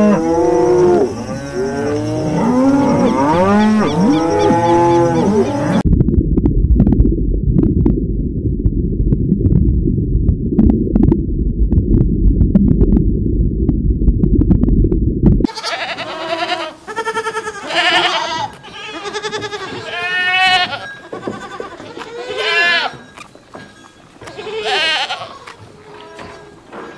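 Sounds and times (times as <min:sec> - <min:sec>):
goats bleating: 0:15.5 - 0:23.0, 0:24.2 - 0:26.6.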